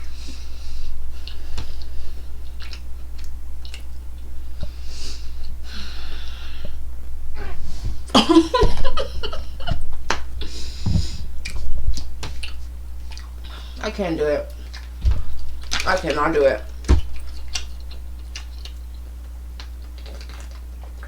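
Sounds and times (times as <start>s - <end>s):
heavy breathing through nose: 0.0s - 3.2s, 3.8s - 8.2s, 10.3s - 13.9s
person chewing: 0.0s - 13.8s, 14.5s - 21.0s
wet mouth clicks: 2.6s - 3.9s, 17.2s - 21.0s.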